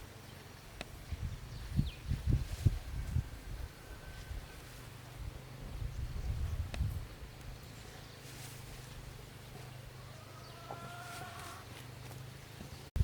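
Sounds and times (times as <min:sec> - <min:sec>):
drawn-out bird call: 0:09.2 - 0:12.9.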